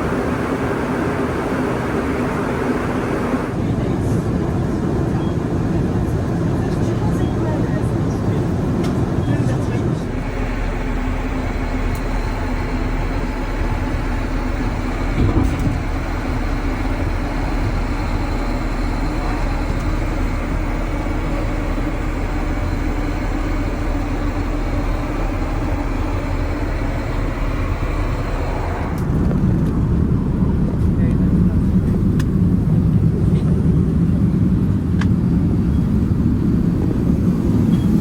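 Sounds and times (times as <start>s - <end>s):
airplane cabin roar in flight: 0.0s - 38.0s
faint steady whine: 10.0s - 38.0s.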